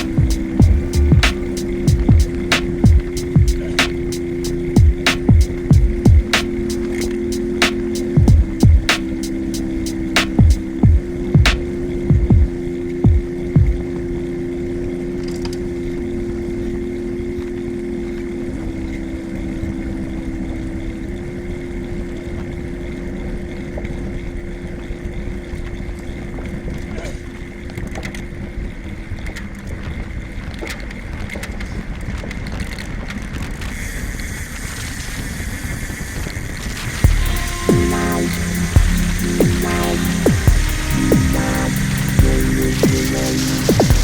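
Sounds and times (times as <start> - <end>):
steady low hum: 0.0 - 29.1, 37.0 - 44.0.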